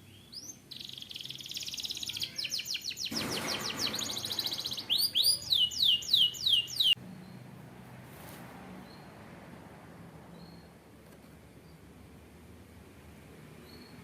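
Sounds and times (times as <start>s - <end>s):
canary singing: 0.0s - 7.4s.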